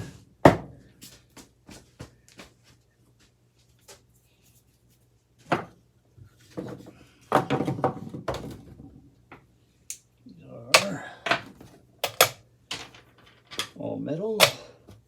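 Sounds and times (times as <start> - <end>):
loud knocks of fan parts: 0.0 - 0.8.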